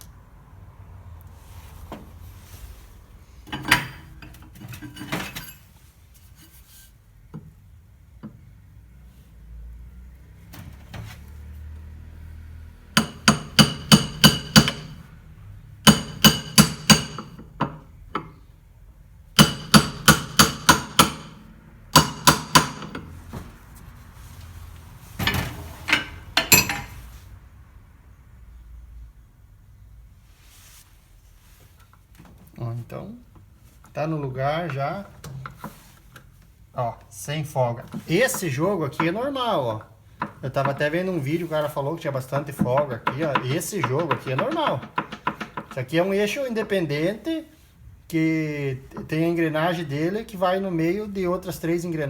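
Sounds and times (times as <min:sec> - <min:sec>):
hammer striking metal: 0:13.0 - 0:15.0, 0:15.8 - 0:18.3, 0:19.4 - 0:23.1, 0:26.0 - 0:26.9.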